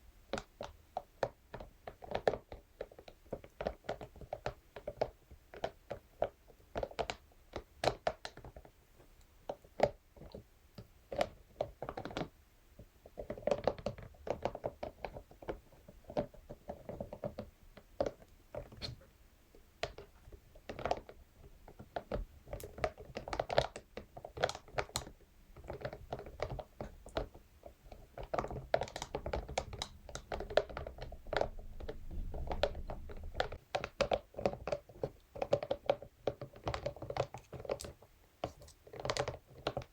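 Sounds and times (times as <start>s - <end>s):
massage brush tapping and scraping: 19.8s - 39.9s.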